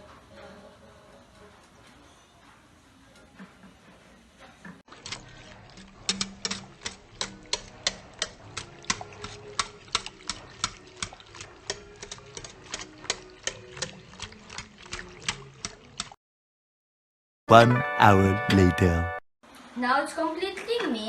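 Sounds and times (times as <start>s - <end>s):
utensil clinking against mixing bowl: 4.9s - 16.1s.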